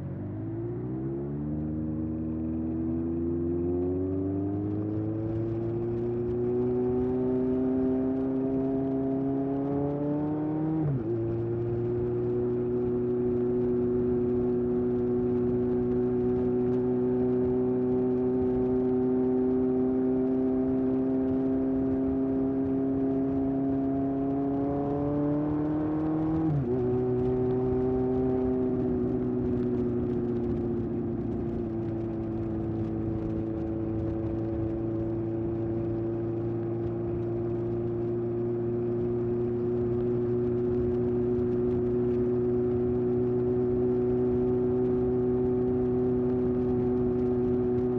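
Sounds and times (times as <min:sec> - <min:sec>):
motorcycle engine running: 0:10.5 - 0:47.9.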